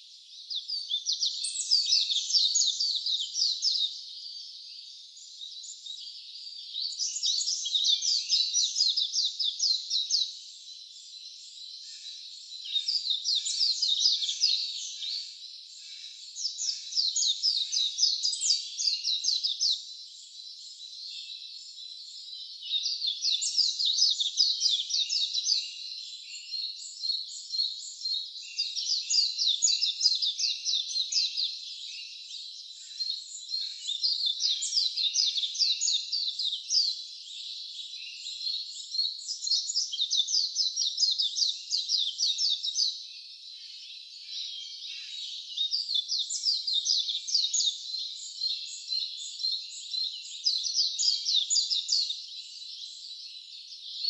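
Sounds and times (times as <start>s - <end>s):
songbird singing trilled phrases: 0.0s - 54.0s.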